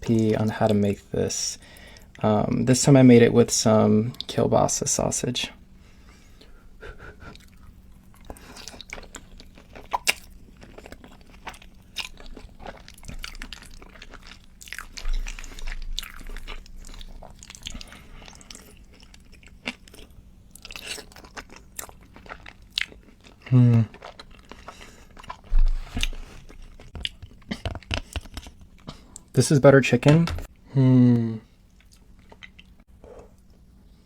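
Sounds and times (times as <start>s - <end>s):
person chewing food: 6.4s - 29.3s, 31.6s - 34.0s.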